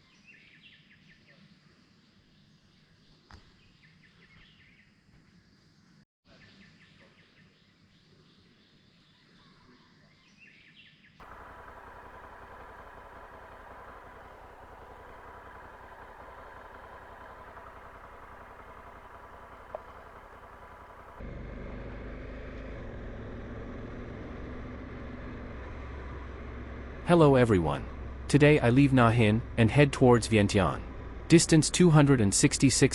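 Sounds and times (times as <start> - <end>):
low vehicle rumble: 11.2 - 22.2
vehicle and road noise: 11.2 - 32.9.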